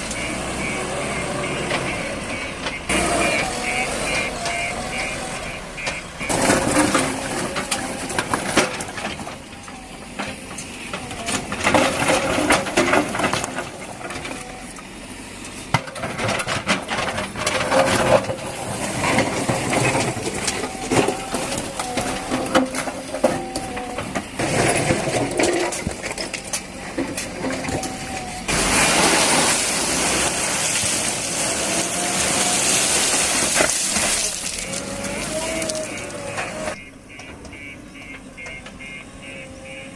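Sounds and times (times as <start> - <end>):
backhoe engine and hydraulics: 0.0 - 39.9
bucket crunching and clattering: 5.9 - 14.6, 15.7 - 37.7.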